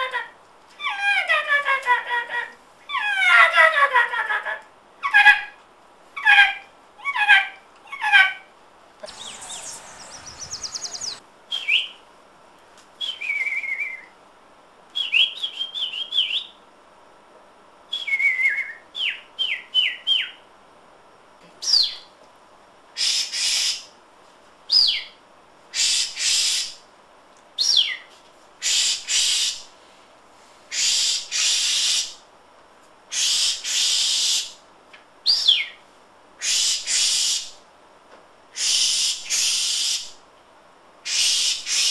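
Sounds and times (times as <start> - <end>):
person whistling bird calls: 9.1 - 11.2.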